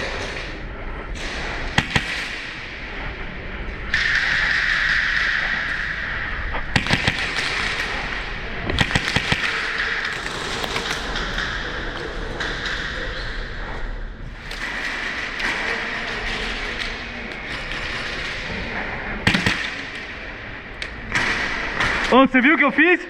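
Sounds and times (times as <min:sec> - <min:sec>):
airsoft gun shots: 0:01.7 - 0:02.7, 0:06.7 - 0:11.6, 0:19.2 - 0:20.3.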